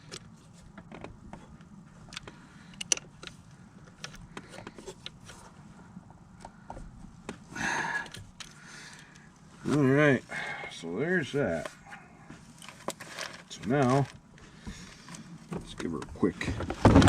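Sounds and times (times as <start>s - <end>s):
scraping rustle: 11.3s - 14.2s.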